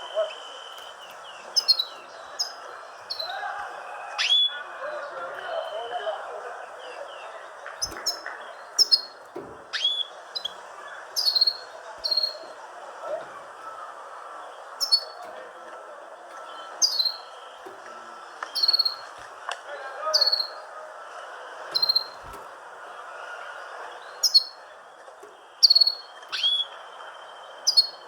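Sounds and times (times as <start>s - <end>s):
small birds chirping: 0.0s - 28.0s
steady background noise: 0.0s - 28.0s.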